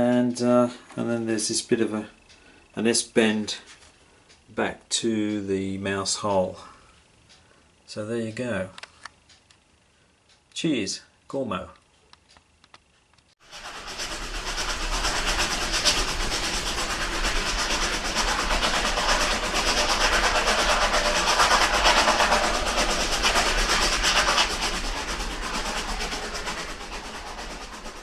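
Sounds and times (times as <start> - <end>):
model train wheels clicking: 11.9 - 28.0.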